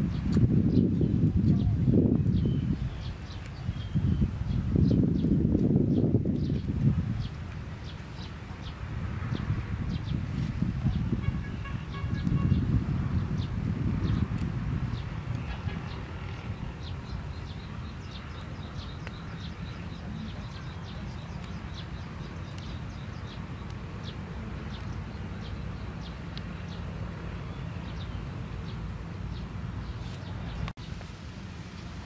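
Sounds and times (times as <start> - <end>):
bird chirping: 0.1 - 10.2, 10.9 - 31.0.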